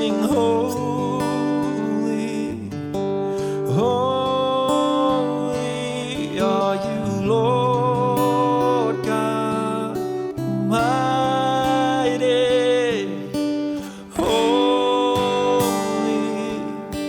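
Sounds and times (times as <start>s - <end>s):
live worship band song: 3.4s - 17.0s.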